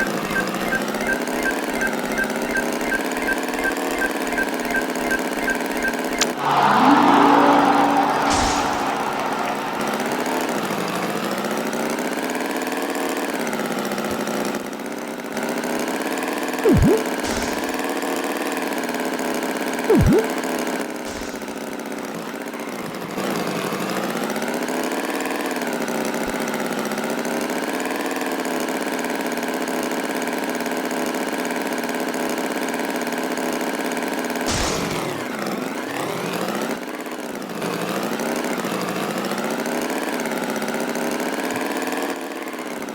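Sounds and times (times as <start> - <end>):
loud swooping sounds: 4.3 - 11.3, 16.6 - 17.8, 19.9 - 20.3.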